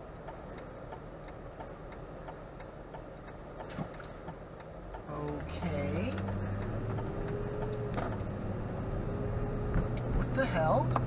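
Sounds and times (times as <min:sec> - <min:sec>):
faint regular ticking: 0:00.0 - 0:08.5
low rumble inside car cabin: 0:00.0 - 0:11.0.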